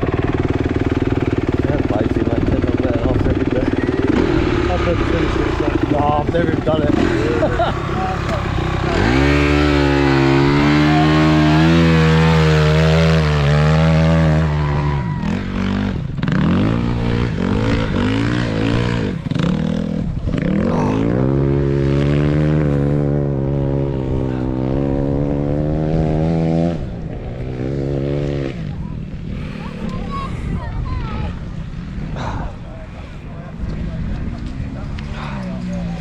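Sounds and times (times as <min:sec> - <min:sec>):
motocross bike engines revving: 0:00.0 - 0:36.0.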